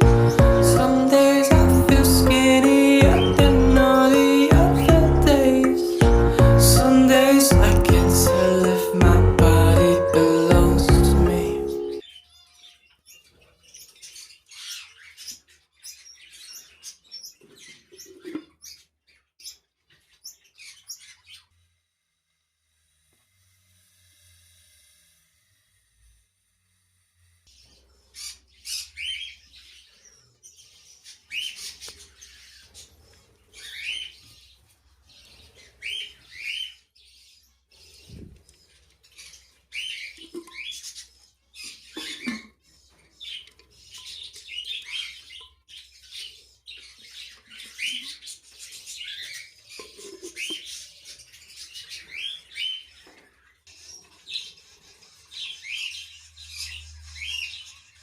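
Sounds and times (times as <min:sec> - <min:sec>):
lovebirds chirping: 0:00.0 - 0:21.5.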